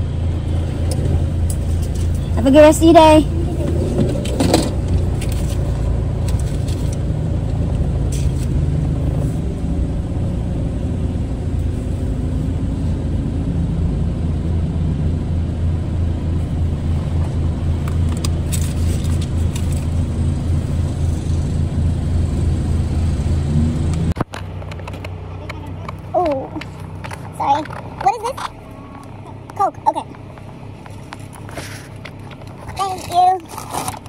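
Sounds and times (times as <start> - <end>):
car engine hum from inside: 0.0 - 34.0.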